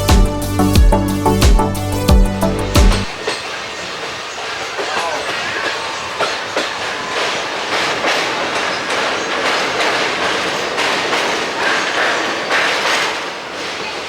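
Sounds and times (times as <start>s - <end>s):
train wheels rumbling on rails: 0.0s - 14.0s
wheels clacking over rail joints: 3.0s - 14.0s.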